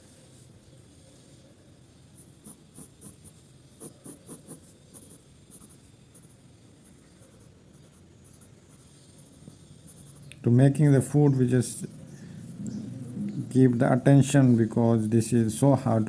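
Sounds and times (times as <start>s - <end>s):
pencil scratching on paper: 2.0s - 10.3s.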